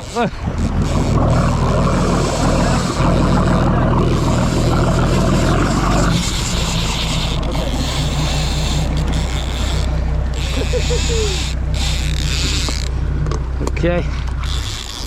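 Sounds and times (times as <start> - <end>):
boat engine running: 0.0 - 15.0
rushing water noise: 0.0 - 15.0.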